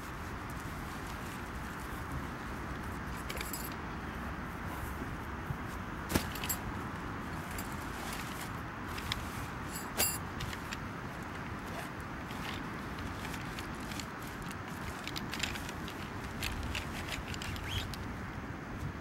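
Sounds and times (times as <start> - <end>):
steady rushing background noise: 0.0 - 19.0
sharp metallic clinks: 9.7 - 10.3.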